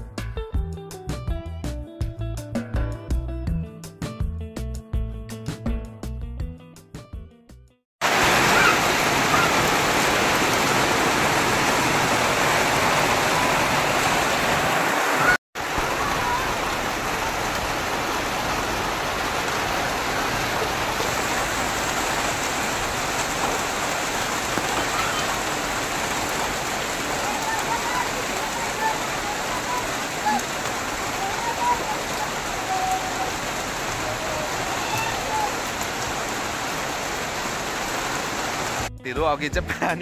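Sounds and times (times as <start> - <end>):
rain falling: 8.0 - 38.9.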